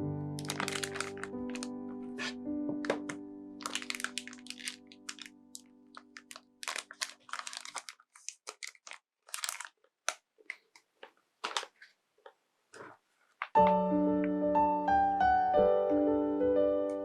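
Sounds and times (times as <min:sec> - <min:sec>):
ear pads crinkling and scratching: 0:00.4 - 0:13.6.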